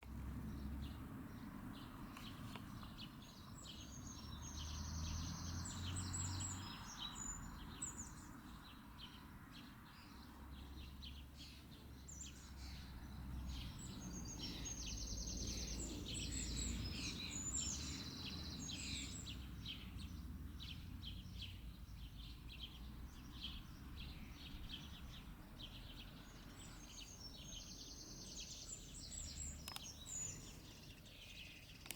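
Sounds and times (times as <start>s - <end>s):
songbird singing: 0.0s - 31.9s.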